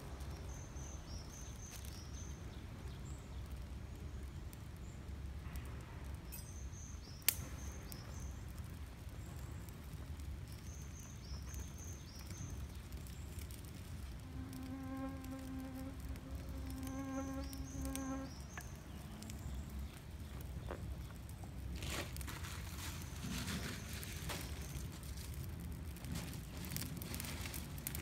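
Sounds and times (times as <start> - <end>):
insect buzzing: 14.2 - 18.7.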